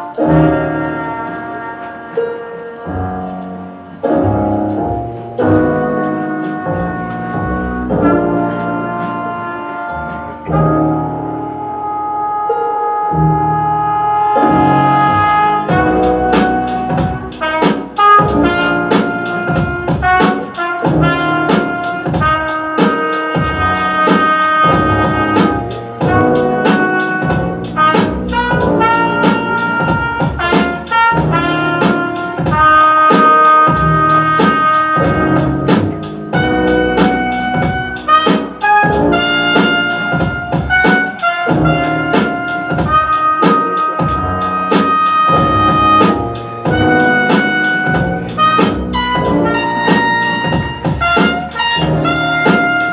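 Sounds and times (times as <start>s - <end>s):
brass melody: 0.0s - 52.9s
fast drum beat: 15.2s - 52.9s.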